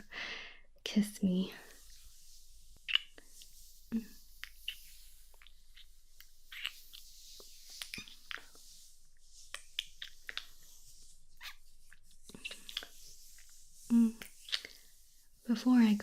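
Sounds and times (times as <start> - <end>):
faint hiss: 0.0 - 16.0
wet lip smacks: 9.5 - 10.6, 11.4 - 13.5, 14.2 - 14.8.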